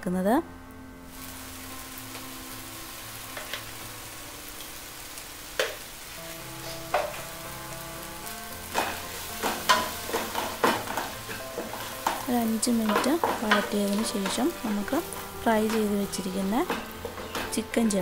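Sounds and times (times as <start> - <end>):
sauce sizzling in a pot: 1.1 - 18.0
wooden spoon knocking and scraping: 8.7 - 18.0.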